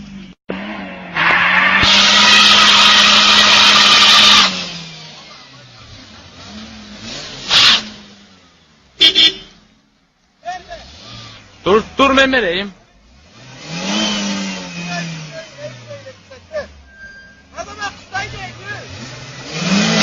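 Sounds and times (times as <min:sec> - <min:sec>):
car engine note: 0:00.0 - 0:09.8.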